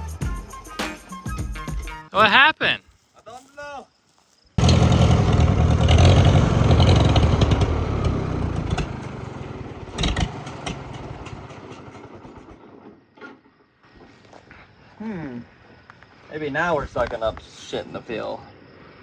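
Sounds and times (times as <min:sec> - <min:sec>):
tractor engine running: 0:04.6 - 0:13.0.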